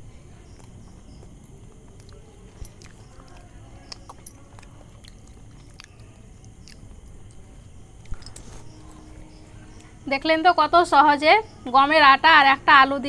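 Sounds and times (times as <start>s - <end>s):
people chewing crisp food: 0.0s - 10.0s.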